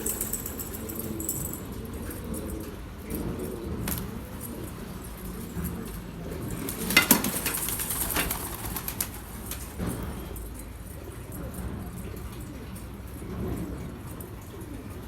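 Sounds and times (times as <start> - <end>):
pigeons cooing: 0.0 - 10.4, 11.0 - 15.0
wings flapping and clatter: 2.6 - 10.2.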